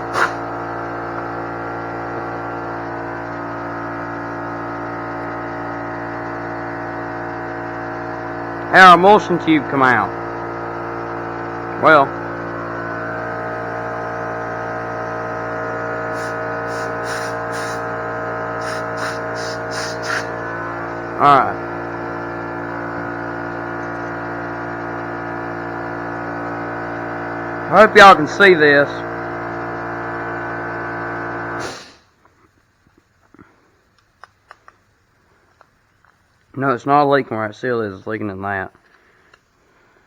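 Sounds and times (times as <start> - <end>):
air nozzle hissing: 0.0 - 1.5, 16.0 - 21.8, 31.6 - 32.1
air compressor running: 0.0 - 33.9
faint clicks of small parts: 32.2 - 36.5, 38.7 - 39.6.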